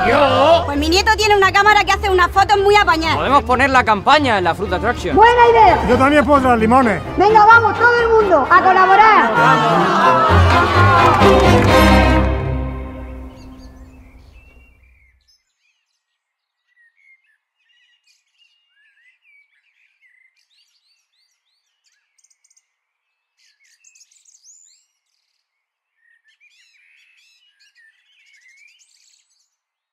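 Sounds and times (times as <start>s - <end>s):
music: 0.0s - 14.8s
songbirds chirping: 12.7s - 29.8s.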